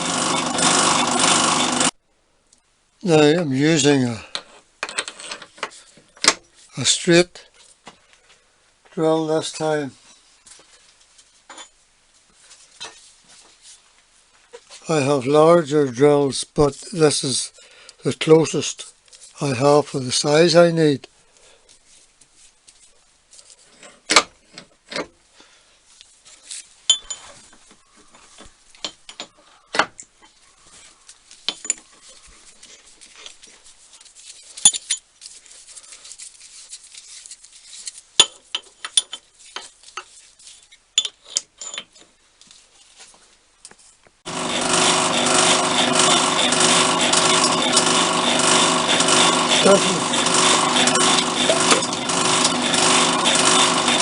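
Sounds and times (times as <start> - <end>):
electric drill motor running: 0.0 - 2.0, 44.3 - 54.0
metal tools clicking and knocking: 26.9 - 27.4, 28.7 - 30.3, 31.4 - 32.0, 34.6 - 35.1, 38.2 - 40.1, 41.0 - 42.1.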